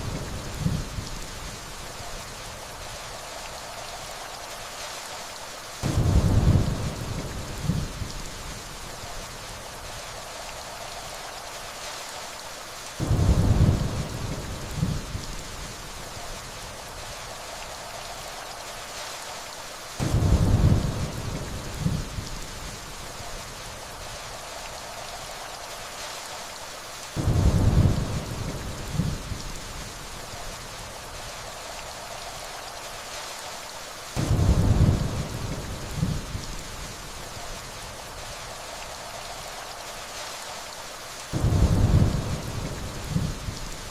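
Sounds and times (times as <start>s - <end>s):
steady rainfall: 0.0s - 43.9s
distant thunder rumbling: 5.8s - 8.5s, 13.0s - 15.8s, 20.0s - 22.4s, 27.2s - 29.9s, 34.2s - 37.0s, 41.3s - 43.8s.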